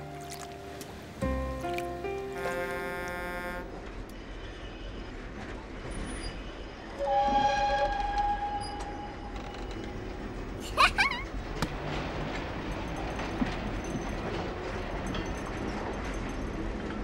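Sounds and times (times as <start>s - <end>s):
train rumbling: 0.0s - 17.0s
two-note train horn: 2.2s - 4.2s, 7.0s - 9.3s.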